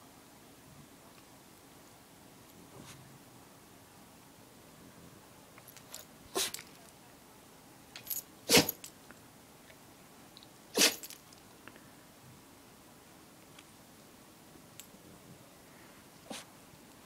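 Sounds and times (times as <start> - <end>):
dog sneezing: 6.3 - 6.6, 8.5 - 8.8, 10.7 - 11.1, 16.3 - 16.5.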